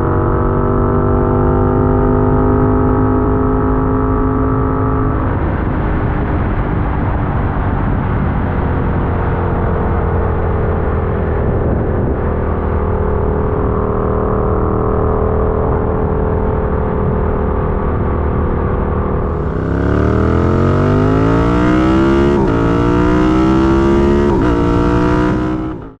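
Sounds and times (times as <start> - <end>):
motorcycle engine accelerating: 0.0 - 26.0
wind rush: 4.8 - 14.4, 15.0 - 26.0.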